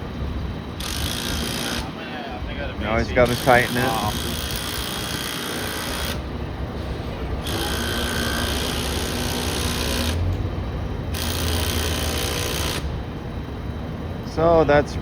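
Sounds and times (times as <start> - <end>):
steady low rumble: 0.0 - 3.4, 4.1 - 15.0
power tool running: 0.8 - 2.0, 2.9 - 10.5, 11.1 - 13.0.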